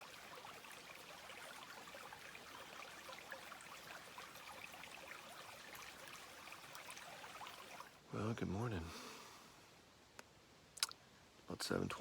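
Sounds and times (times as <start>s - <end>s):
creek running water: 0.0s - 9.5s.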